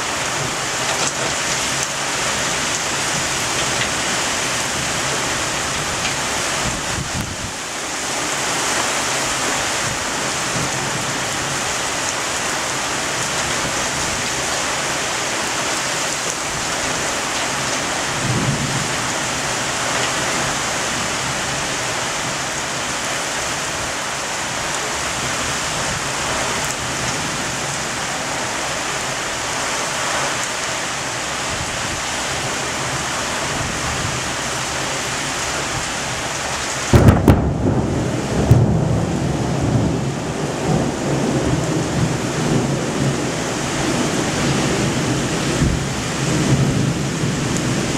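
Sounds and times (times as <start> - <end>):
heavy rain pouring: 0.0 - 47.9
low rumble of thunder: 18.2 - 19.0, 36.9 - 47.9.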